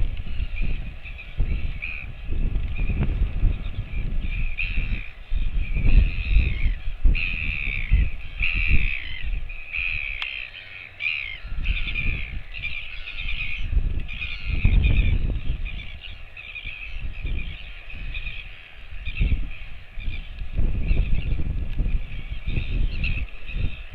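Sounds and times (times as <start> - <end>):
harsh animal calls: 4.3 - 20.3.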